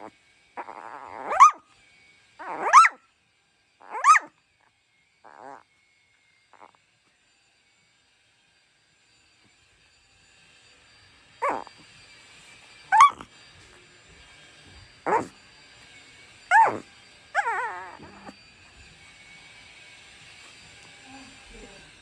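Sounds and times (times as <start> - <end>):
dog yelping: 0.0 - 1.6, 2.4 - 3.0, 3.8 - 4.3, 5.3 - 5.6, 11.4 - 11.8, 12.9 - 13.3, 15.0 - 15.4, 16.5 - 18.4
dog barking: 0.6 - 1.6, 2.4 - 3.0, 3.8 - 4.3, 11.4 - 11.7, 12.9 - 13.3, 15.1 - 15.3, 16.5 - 18.3.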